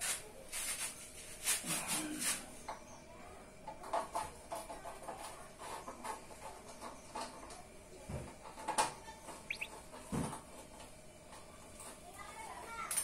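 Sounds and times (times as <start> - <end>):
short high chirps: 9.5 - 9.7.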